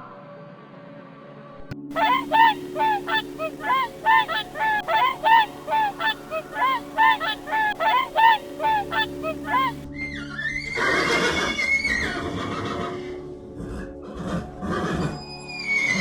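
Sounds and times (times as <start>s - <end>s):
bird honking calls: 1.9s - 9.8s.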